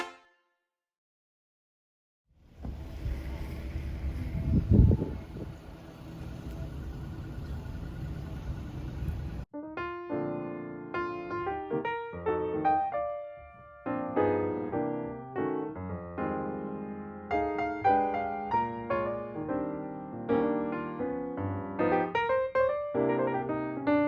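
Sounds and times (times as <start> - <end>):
piano music: 9.6 - 24.0.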